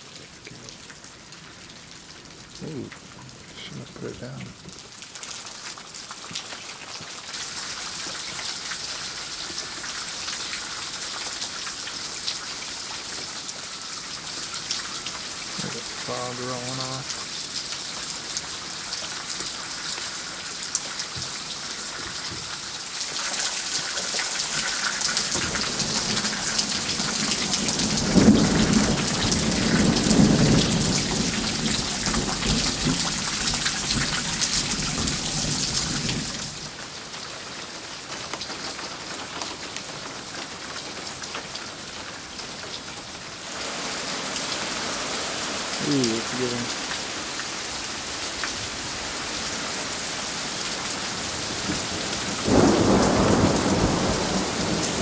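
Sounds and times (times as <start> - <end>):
rain falling: 0.0 - 55.0
rolling thunder: 52.3 - 55.0.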